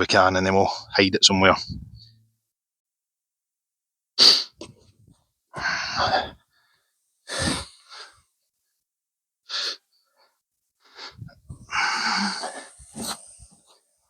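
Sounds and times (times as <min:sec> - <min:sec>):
man gasping breaths: 0:10.8 - 0:13.6.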